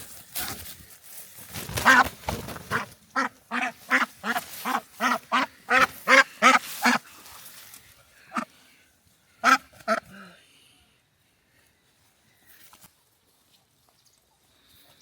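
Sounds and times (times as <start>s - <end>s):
duck quacking: 1.8s - 7.1s, 8.3s - 8.6s, 9.4s - 10.2s.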